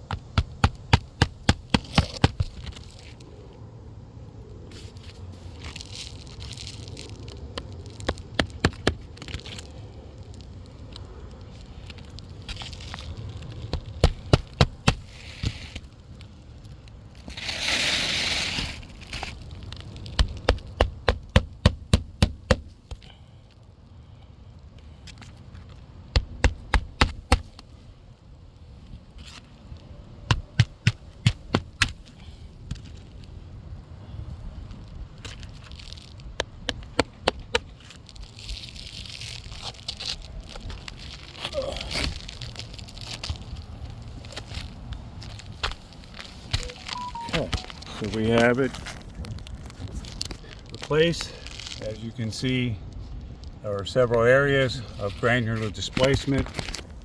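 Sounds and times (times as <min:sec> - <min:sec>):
shingles scraping and crackling: 0:00.0 - 0:03.3, 0:04.7 - 0:23.2, 0:24.9 - 0:28.0, 0:29.1 - 0:33.4, 0:34.3 - 0:51.9, 0:54.5 - 0:57.0
hammer driving nails: 0:00.1 - 0:02.7, 0:20.2 - 0:22.8, 0:26.2 - 0:27.5, 0:30.3 - 0:32.0.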